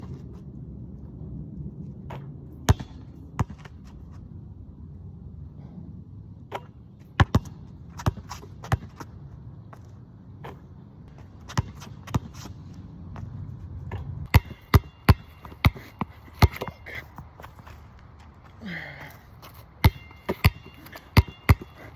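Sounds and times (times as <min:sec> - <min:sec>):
low rumble: 0:00.0 - 0:08.2, 0:09.2 - 0:14.4
basketball bouncing: 0:02.1 - 0:03.7, 0:06.5 - 0:09.1, 0:11.2 - 0:12.4, 0:13.9 - 0:16.8, 0:19.8 - 0:21.9.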